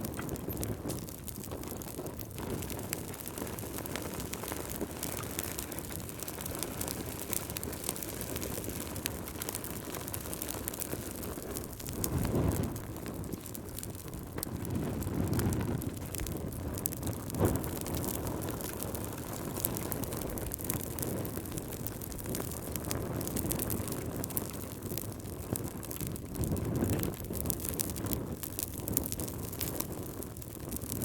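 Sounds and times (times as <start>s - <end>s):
wind gusts: 0.0s - 31.0s
wood fire crackling and popping: 0.0s - 31.0s.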